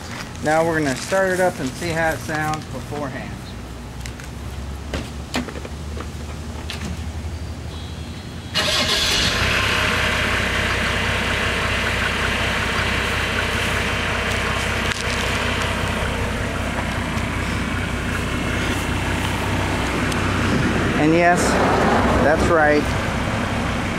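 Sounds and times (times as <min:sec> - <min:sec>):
diesel engine starting and idling: 0:07.0 - 0:23.9.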